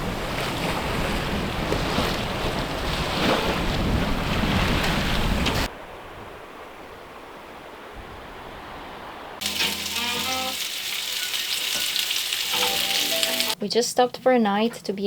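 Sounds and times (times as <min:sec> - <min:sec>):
wind buffeting microphone: 0:00.0 - 0:09.4
sea wash: 0:00.0 - 0:13.6.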